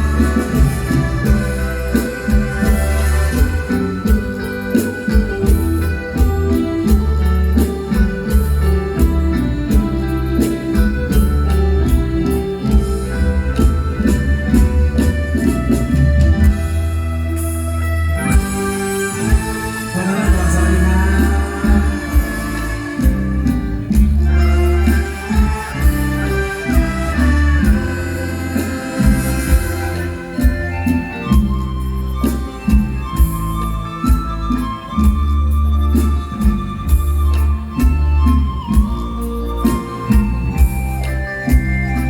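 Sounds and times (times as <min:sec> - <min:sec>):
heavy bass line: 0:00.0 - 0:31.8
drums keeping a steady beat: 0:00.0 - 0:42.0
electronic organ keyboard melody: 0:00.0 - 0:42.0.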